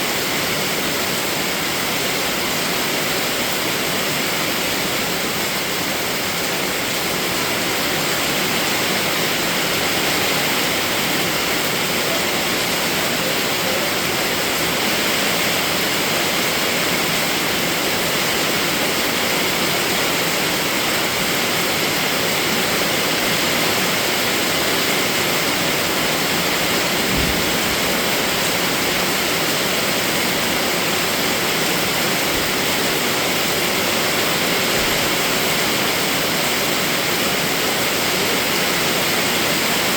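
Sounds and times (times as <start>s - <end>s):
heavy rain: 0.0s - 39.9s
low thump: 27.0s - 28.2s.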